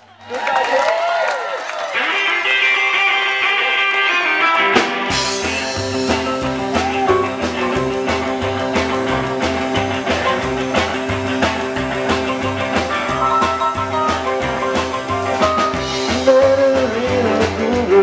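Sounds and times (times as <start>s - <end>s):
electric guitar notes: 2.0s - 18.0s
drums and bass beat: 3.4s - 18.0s.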